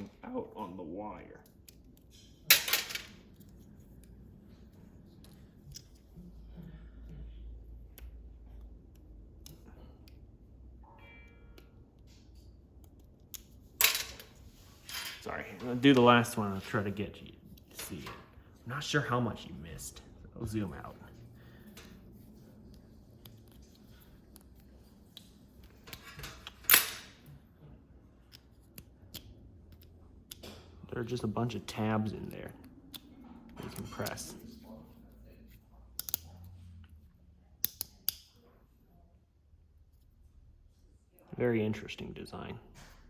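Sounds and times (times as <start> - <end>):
wiring and small parts clicking: 1.4 - 6.2, 7.0 - 10.8, 11.5 - 16.4, 28.2 - 34.4, 35.5 - 38.5
clicks and taps of small parts: 7.9 - 10.2, 28.2 - 30.6, 35.9 - 36.3, 37.6 - 38.3.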